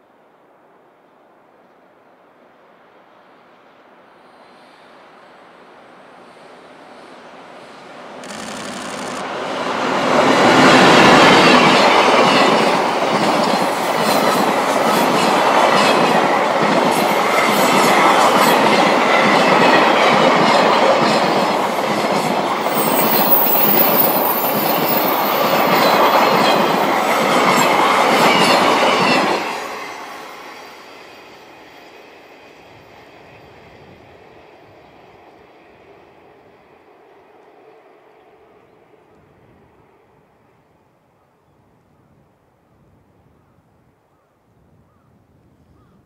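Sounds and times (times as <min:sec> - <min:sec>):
freight train clattering past: 0:09.2 - 0:39.0
high wheel squeal: 0:22.7 - 0:26.0.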